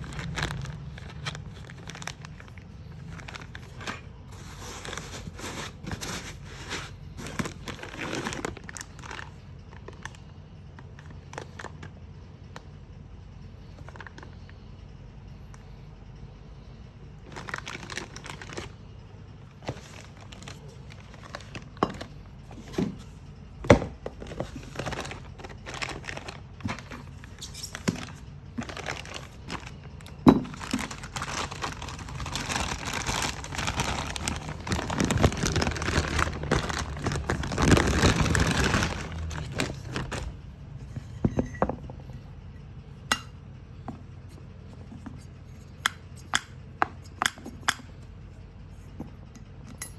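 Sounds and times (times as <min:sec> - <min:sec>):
packaging crinkling and rustling: 0:00.0 - 0:11.9, 0:17.2 - 0:18.8, 0:19.5 - 0:41.4.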